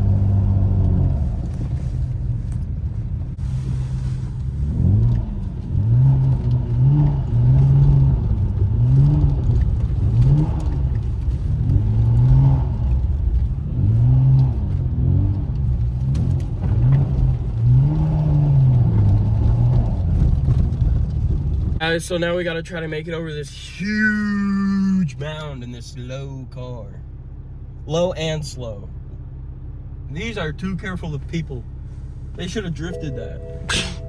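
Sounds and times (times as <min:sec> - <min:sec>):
car engine revving: 0:03.4 - 0:21.7.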